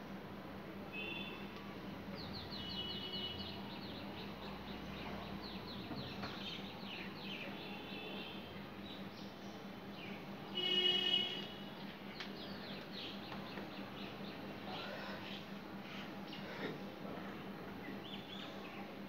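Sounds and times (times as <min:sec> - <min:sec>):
birds chirping: 0:02.1 - 0:16.7.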